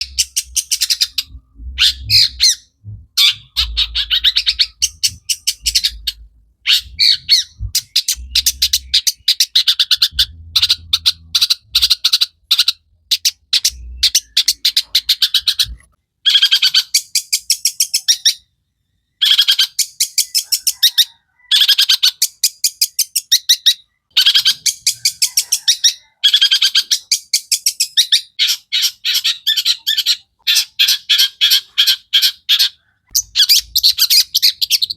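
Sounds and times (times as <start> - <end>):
low thumps: 0.0 - 9.2, 9.9 - 12.1
bird chattering song: 0.0 - 18.5, 21.6 - 34.9.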